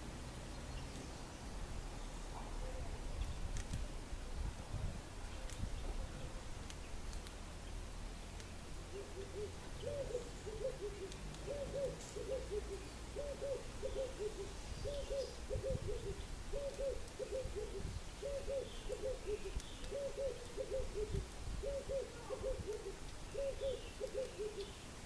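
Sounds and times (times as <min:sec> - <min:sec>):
bird cooing: 0:08.9 - 0:24.8.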